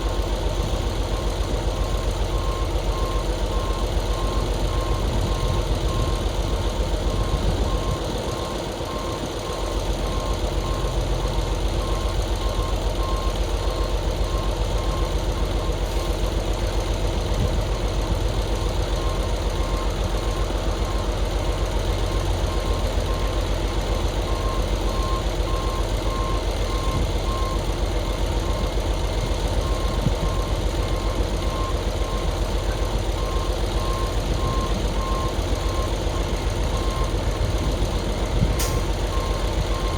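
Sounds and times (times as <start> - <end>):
truck engine running: 0.0 - 39.9
reversing alarm beeps: 1.1 - 15.8, 18.7 - 21.2, 21.9 - 28.7, 29.5 - 37.6, 38.6 - 39.9.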